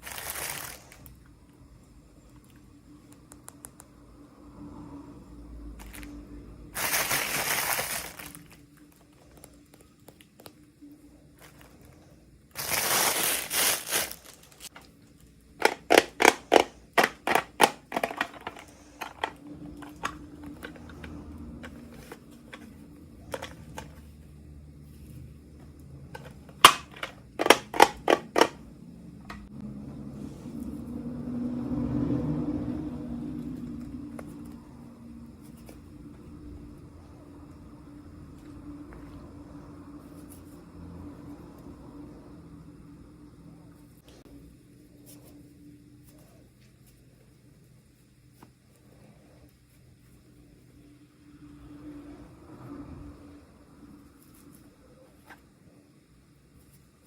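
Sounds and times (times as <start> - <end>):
plastic packaging crinkling: 0.0 - 1.1, 6.8 - 10.6, 12.5 - 14.8.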